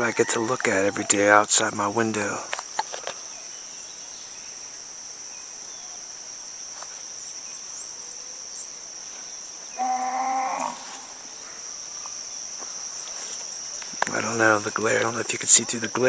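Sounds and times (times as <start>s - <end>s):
insects droning: 0.0s - 16.0s
pitched animal call: 9.8s - 11.6s.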